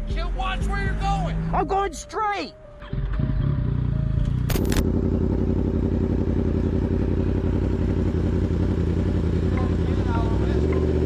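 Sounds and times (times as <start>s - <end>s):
motorcycle engine running: 2.8s - 11.0s
sharp crackle: 4.3s - 4.9s.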